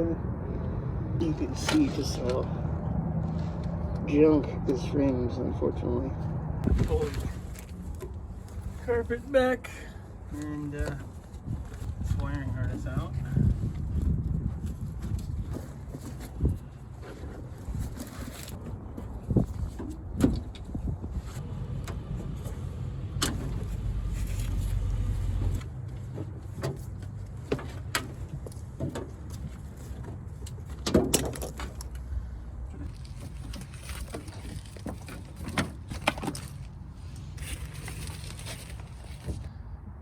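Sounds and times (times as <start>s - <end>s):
low steady rumble: 20.8s - 27.5s.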